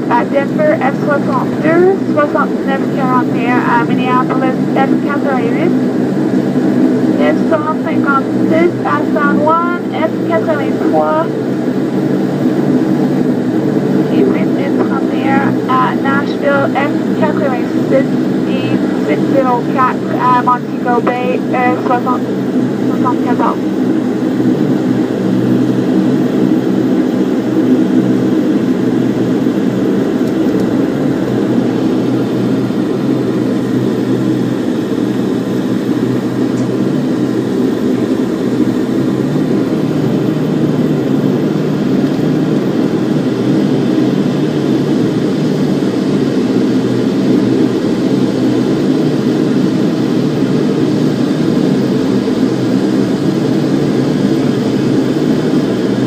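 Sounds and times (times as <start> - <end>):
turboprop engines droning: 0.0 - 56.0.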